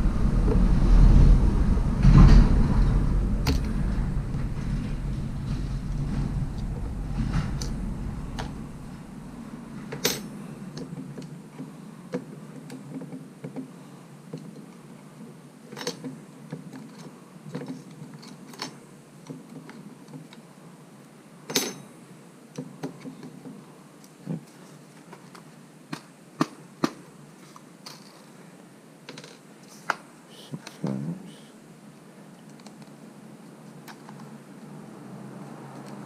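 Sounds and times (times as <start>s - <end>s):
small hardware clicking and clinking: 9.9s - 11.3s.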